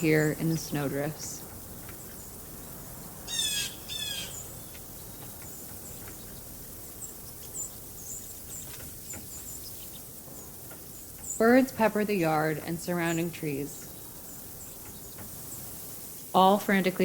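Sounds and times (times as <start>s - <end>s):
harsh bird calls: 0.0s - 16.4s
steady hiss: 0.0s - 17.0s.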